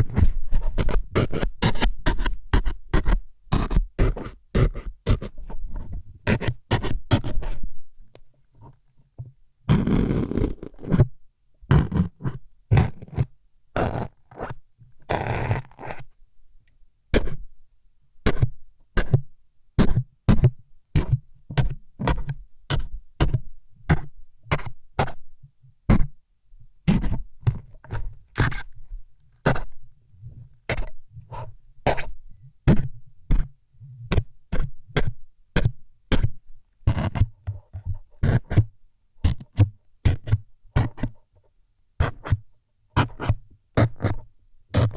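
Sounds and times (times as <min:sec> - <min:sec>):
sharp needle stabbing scrapes: 0:11.7 - 0:13.2, 0:29.4 - 0:29.7.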